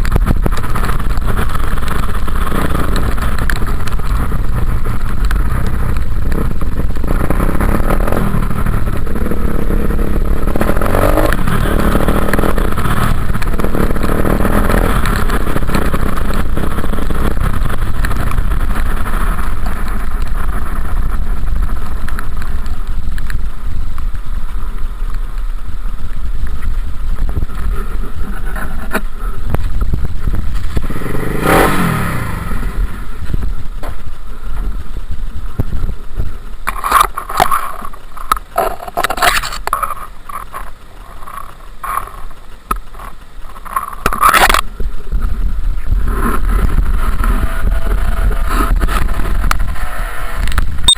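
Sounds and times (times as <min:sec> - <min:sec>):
dirt bike engine revving: 0:00.0 - 0:22.0, 0:27.2 - 0:33.8.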